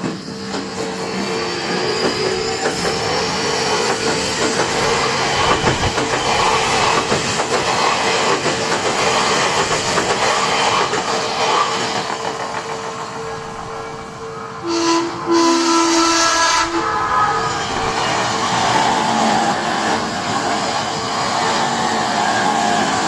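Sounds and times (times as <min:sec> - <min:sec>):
train wheels clattering over rail joints: 0:01.6 - 0:14.2
steady tone: 0:12.3 - 0:18.6.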